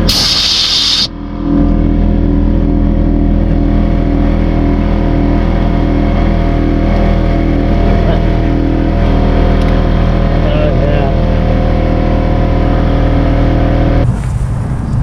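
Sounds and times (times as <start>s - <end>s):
loud sharp hiss: 0.0s - 1.1s
engine drone: 0.0s - 15.0s.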